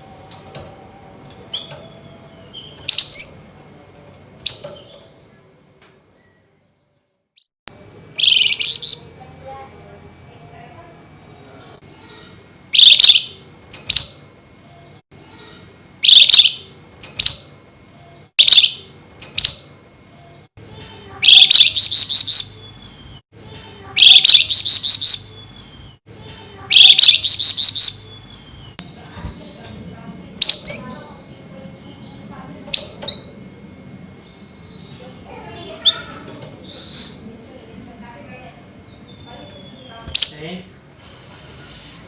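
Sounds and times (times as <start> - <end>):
bird shrill calls: 12.8 - 13.3, 16.0 - 17.4, 21.2 - 22.6, 24.0 - 25.5, 26.7 - 28.3.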